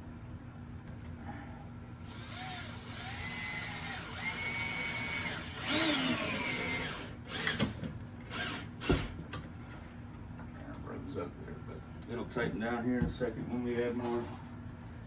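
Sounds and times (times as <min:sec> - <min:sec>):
power drill driving a screw: 0:02.0 - 0:09.2.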